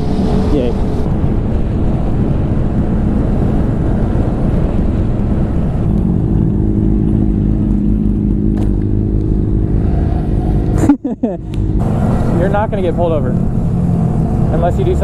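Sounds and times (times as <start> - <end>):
heavy low rumble: 0.0 - 15.0
motorcycle engine running: 0.0 - 15.0.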